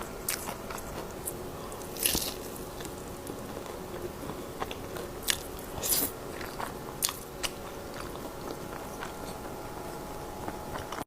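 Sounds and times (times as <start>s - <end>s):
crunchy bites: 0.2s - 3.8s
chewing: 0.3s - 11.0s.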